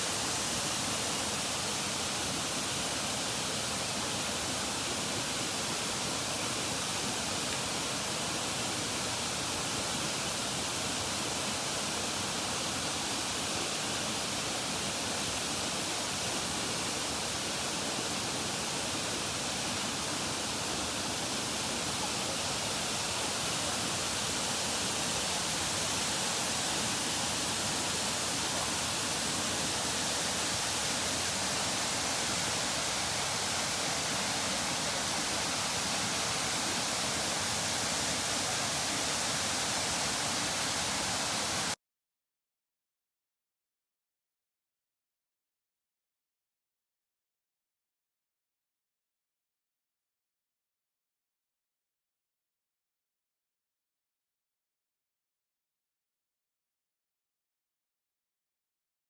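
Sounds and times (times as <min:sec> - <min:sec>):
waterfall roar: 0:19.2 - 0:41.8.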